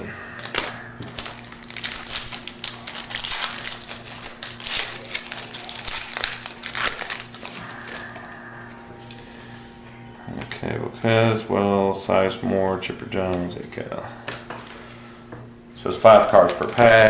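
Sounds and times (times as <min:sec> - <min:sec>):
foil wrapper crinkling and tearing: 0:00.3 - 0:08.4, 0:14.5 - 0:15.0, 0:16.1 - 0:17.0.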